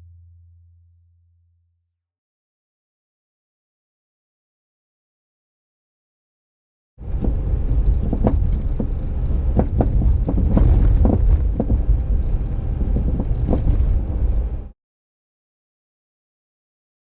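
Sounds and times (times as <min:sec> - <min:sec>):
suspension knocking: 0:07.0 - 0:14.7
van rumbling: 0:07.0 - 0:14.8.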